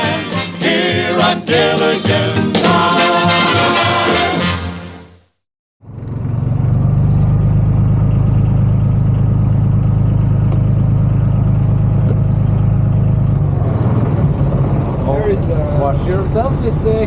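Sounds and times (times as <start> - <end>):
motorboat engine droning: 5.8 - 17.0.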